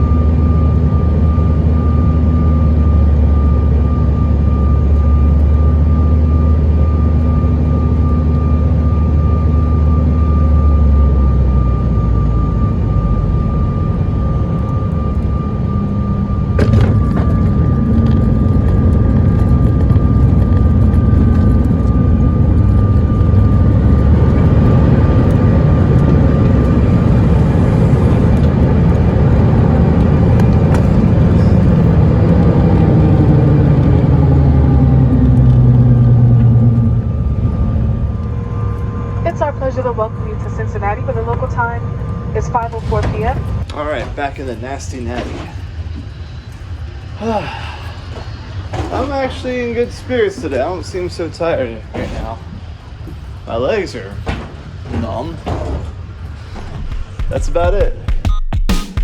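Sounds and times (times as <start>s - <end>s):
thin steady whine: 0.0s - 58.1s
jet engine cabin drone: 0.0s - 59.0s.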